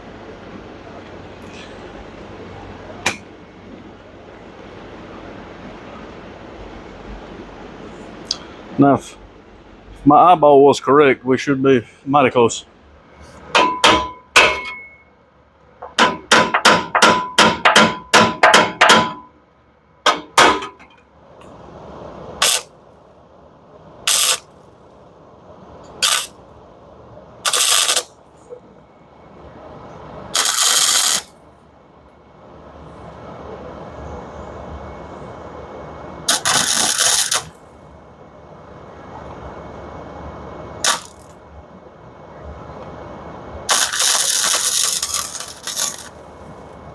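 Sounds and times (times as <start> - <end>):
hammer ringing on metal pipe: 13.6 - 15.0, 16.0 - 19.3
arc welding crackling: 22.4 - 22.8, 24.0 - 25.0, 25.8 - 26.6, 27.4 - 28.3, 30.3 - 31.4, 36.2 - 37.7, 40.8 - 41.4, 43.6 - 46.8.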